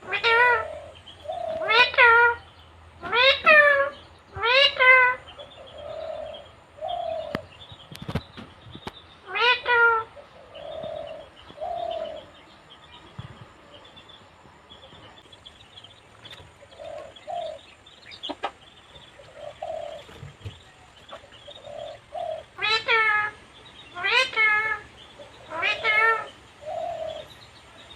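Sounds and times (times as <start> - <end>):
parrot loud call: 0.0 - 7.3, 21.8 - 24.9, 25.5 - 27.3
soft cooing: 10.0 - 12.3, 25.5 - 27.3.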